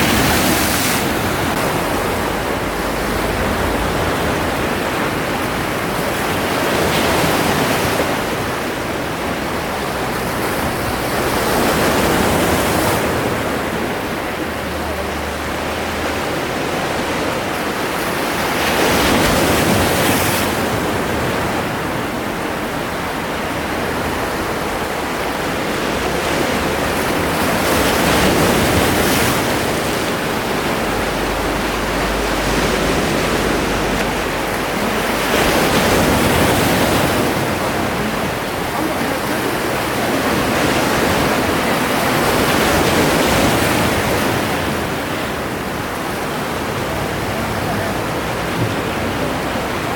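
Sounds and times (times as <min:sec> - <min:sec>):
sea waves washing onto shore: 0:00.0 - 0:49.9.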